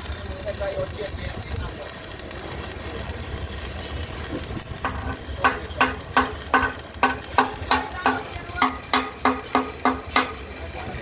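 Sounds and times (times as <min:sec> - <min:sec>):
sizzling hiss: 0:00.0 - 0:11.0
hammer blows on steel: 0:04.8 - 0:10.5.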